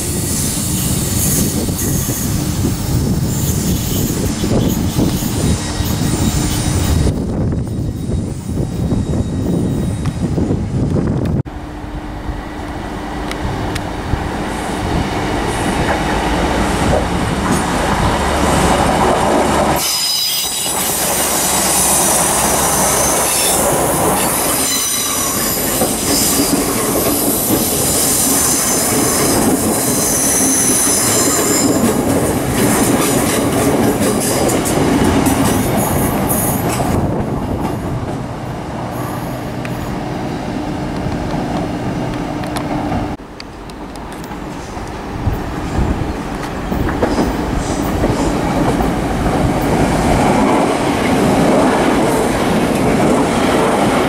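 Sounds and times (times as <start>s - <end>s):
train wheels squealing on track: 0.0s - 10.6s, 19.7s - 37.0s
train rail rumble: 0.0s - 54.0s.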